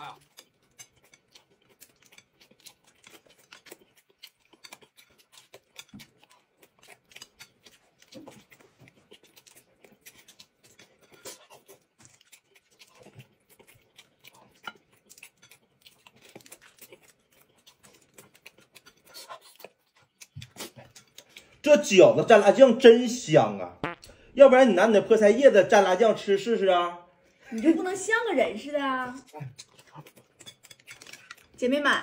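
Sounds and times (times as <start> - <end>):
person chewing food: 0.0 - 21.6, 23.8 - 24.3, 29.2 - 31.6.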